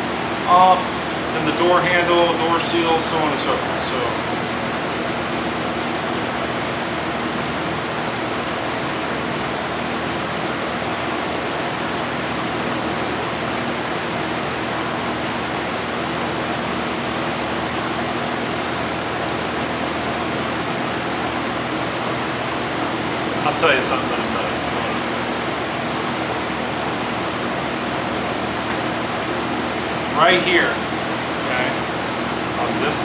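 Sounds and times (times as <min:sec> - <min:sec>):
fan low hum: 0:00.0 - 0:33.0
fan rushing air: 0:00.0 - 0:33.0.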